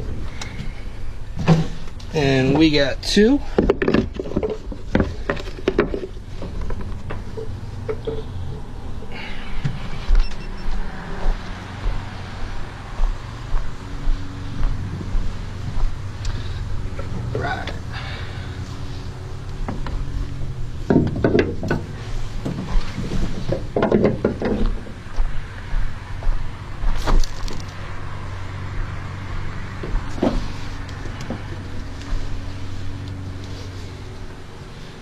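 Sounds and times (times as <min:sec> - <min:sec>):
steady low hum: 0:00.0 - 0:35.0
strap hooks knocking and clattering: 0:20.9 - 0:24.9.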